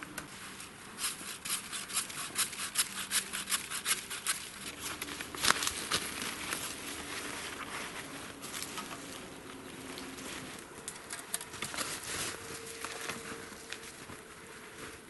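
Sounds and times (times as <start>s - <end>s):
snow and branches crunching: 4.3s - 15.0s.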